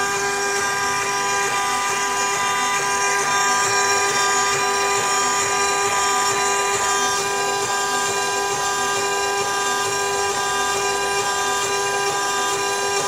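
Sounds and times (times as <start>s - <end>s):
cnc router whine: 0.0s - 13.0s.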